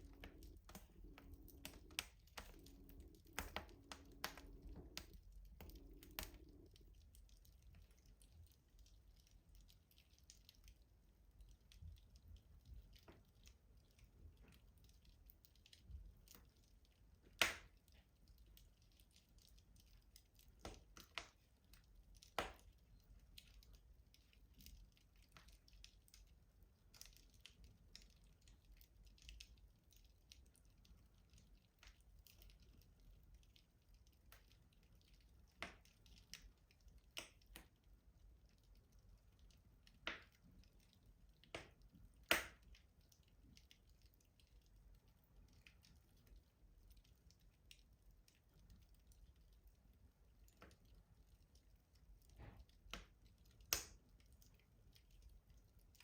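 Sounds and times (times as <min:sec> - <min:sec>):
wood fire crackling in stove: 0:00.0 - 0:56.0.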